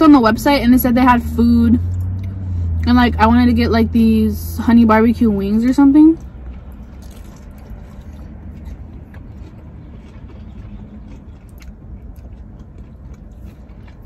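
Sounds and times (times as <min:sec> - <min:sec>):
low car cabin rumble: 0:00.0 - 0:14.0
chewing pizza: 0:06.2 - 0:14.0.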